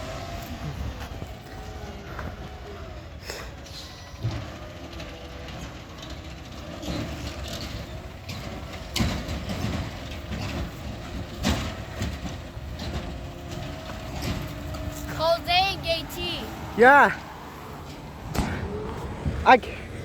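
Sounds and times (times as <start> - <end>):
garbage truck running: 0.0 - 20.0.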